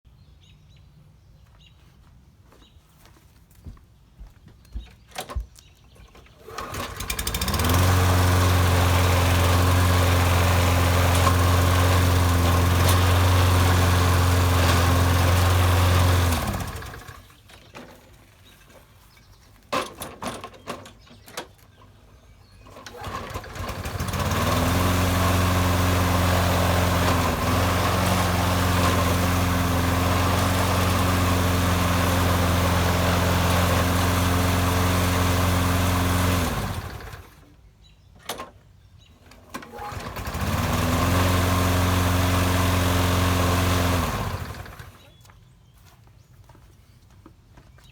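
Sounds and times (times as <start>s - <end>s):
lawn mower engine running: 6.2s - 18.8s, 22.5s - 37.6s, 39.2s - 45.2s.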